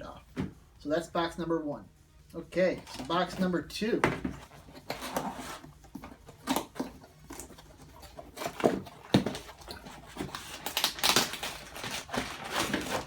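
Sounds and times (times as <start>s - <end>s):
cardboard and plastic rustling: 2.7s - 13.0s.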